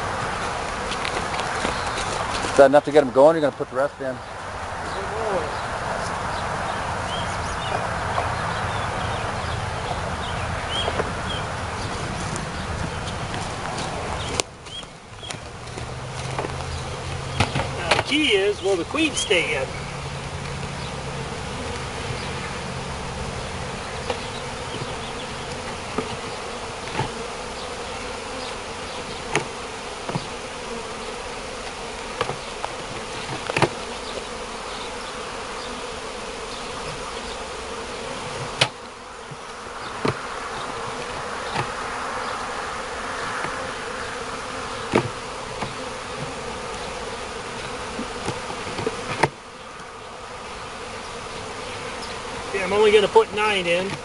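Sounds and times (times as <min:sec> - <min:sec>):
bees buzzing: 0:00.0 - 0:54.0.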